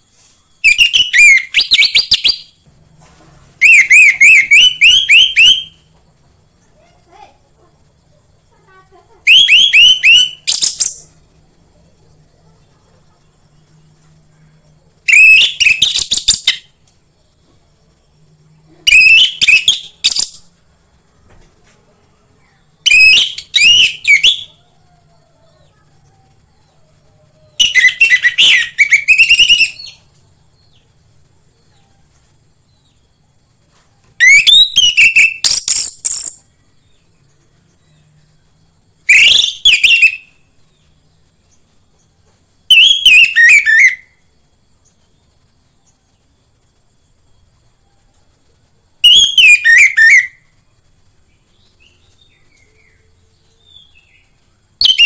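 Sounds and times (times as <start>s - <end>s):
thrush singing whistled phrases: 0.5s - 2.7s, 3.6s - 5.9s, 9.2s - 11.2s, 15.0s - 16.7s, 18.7s - 20.5s, 22.8s - 24.8s, 27.6s - 30.1s, 34.2s - 36.4s, 39.0s - 40.5s, 42.7s - 44.2s, 49.0s - 50.5s, 54.8s - 55.0s.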